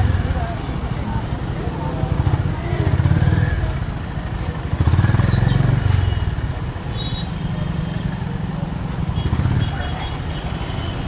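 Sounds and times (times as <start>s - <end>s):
motorcycle engine running: 2.1s - 6.6s.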